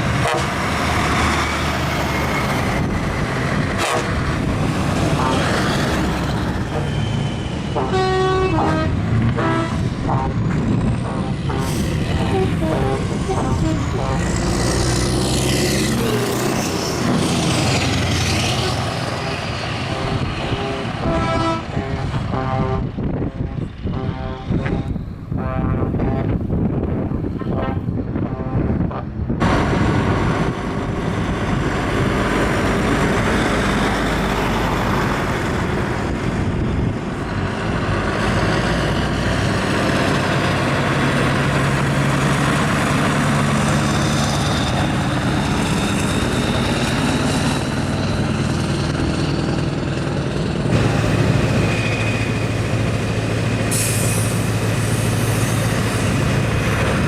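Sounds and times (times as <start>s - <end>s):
truck diesel engines running: 0.0s - 57.0s.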